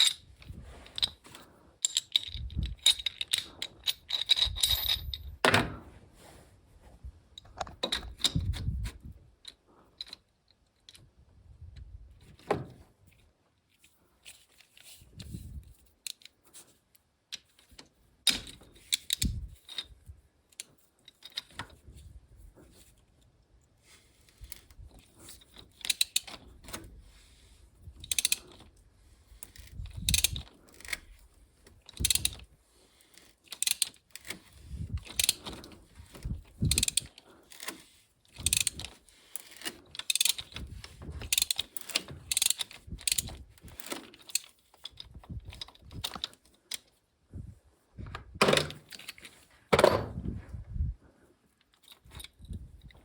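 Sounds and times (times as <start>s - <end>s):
hand tools clicking and clinking: 0.0s - 5.4s, 28.0s - 28.6s, 35.0s - 46.9s.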